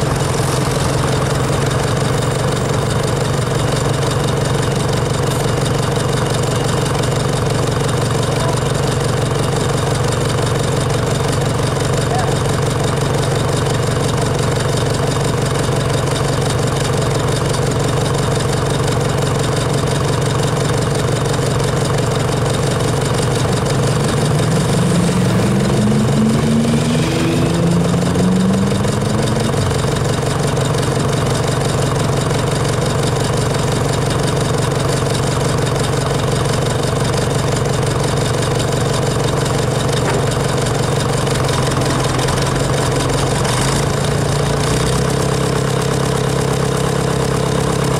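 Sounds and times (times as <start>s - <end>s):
tractor engine running: 0.0s - 47.9s
second engine rising in pitch: 23.1s - 32.2s.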